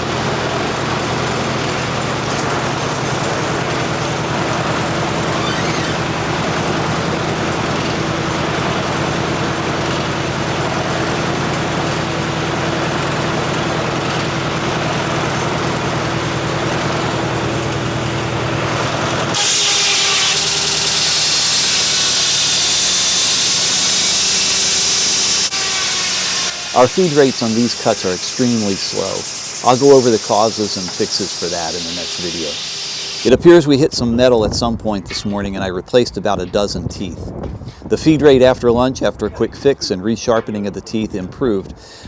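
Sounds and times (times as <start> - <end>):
sawmill engine running: 0.0 - 36.9, 37.7 - 42.0
loud high hiss: 19.4 - 33.4.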